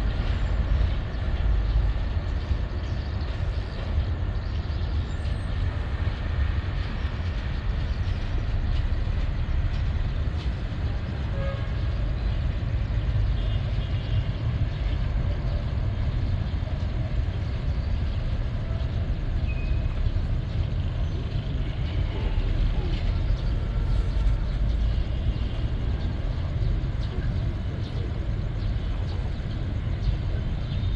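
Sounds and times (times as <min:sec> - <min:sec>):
distant train rumbling: 0:00.0 - 0:30.9.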